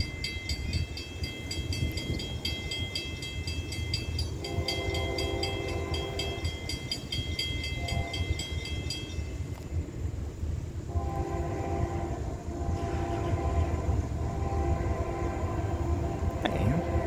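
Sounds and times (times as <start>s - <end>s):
bell ringing rapidly: 0.0s - 9.3s
locomotive engine rumble: 0.0s - 17.0s
locomotive horn blasts: 4.4s - 6.9s, 7.6s - 8.6s, 10.9s - 17.0s.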